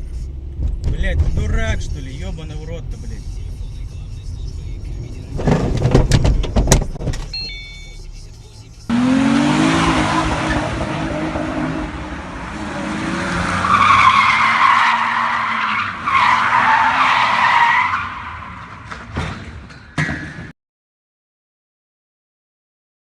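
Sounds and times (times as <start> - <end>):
car tyres squealing: 8.9 - 20.5.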